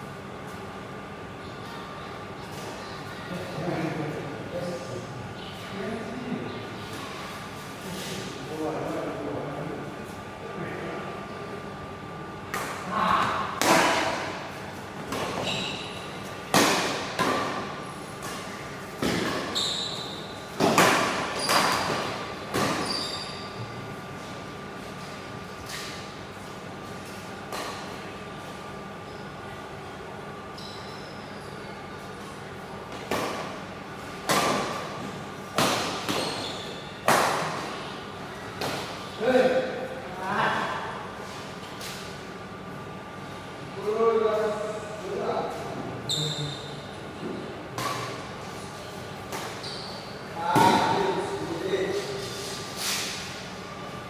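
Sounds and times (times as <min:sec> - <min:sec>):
shoe squeaks: 0:15.3 - 0:16.2, 0:19.2 - 0:20.5, 0:21.4 - 0:21.9, 0:22.6 - 0:23.8, 0:30.5 - 0:31.7, 0:36.1 - 0:37.0, 0:46.1 - 0:47.0, 0:49.4 - 0:51.3
rackets hitting shuttlecock: 0:16.5 - 0:19.6, 0:20.5 - 0:23.0, 0:34.2 - 0:37.8.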